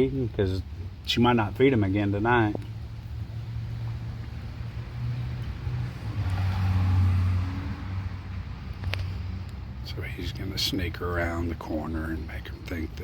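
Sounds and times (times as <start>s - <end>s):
car engine passing: 2.8s - 10.5s.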